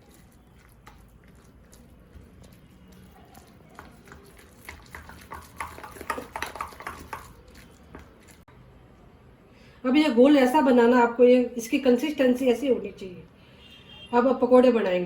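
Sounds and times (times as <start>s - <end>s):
spoon stirring batter in bowl: 0.0s - 8.5s.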